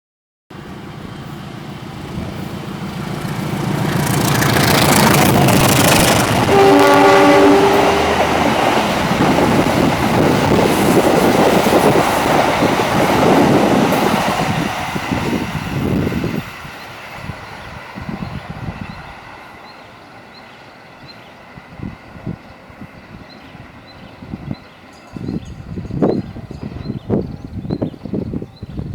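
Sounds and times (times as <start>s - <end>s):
train passing: 0.5s - 28.9s
wheels clattering over rails: 0.6s - 16.1s
train horn blast: 2.3s - 9.0s.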